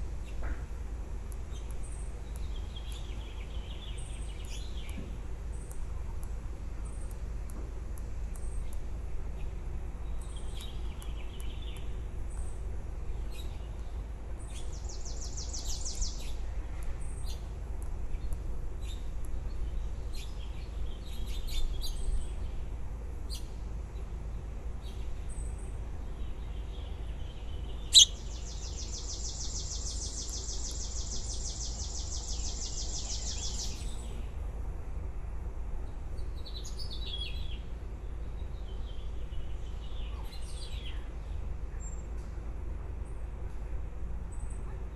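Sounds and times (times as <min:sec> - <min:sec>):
steady low hum: 0:00.0 - 0:44.9
baby birds chirping: 0:27.9 - 0:33.8.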